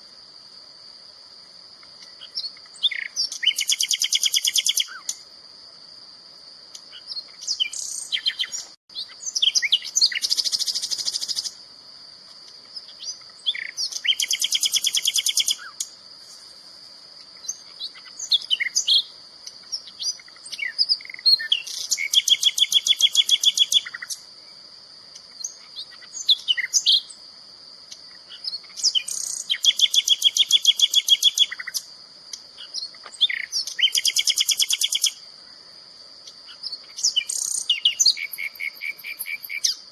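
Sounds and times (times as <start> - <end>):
songbird trilling and chirping: 2.0 - 5.2, 6.7 - 11.6, 12.6 - 16.0, 17.3 - 24.2, 25.2 - 27.2, 27.8 - 35.2, 36.2 - 39.9.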